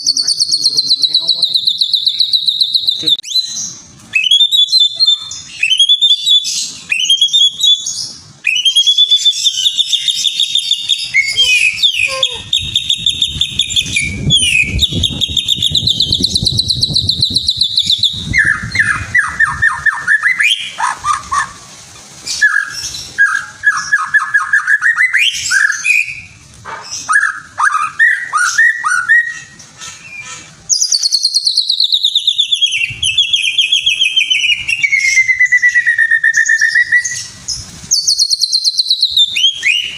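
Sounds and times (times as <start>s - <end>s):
songbird singing trills and chirps: 0.0s - 21.5s, 30.1s - 39.9s.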